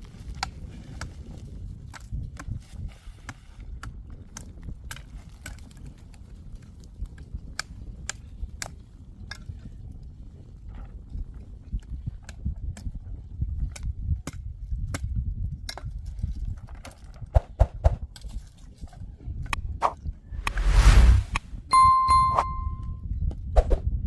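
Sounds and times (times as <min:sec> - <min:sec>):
low rumble: 0:20.2 - 0:23.0.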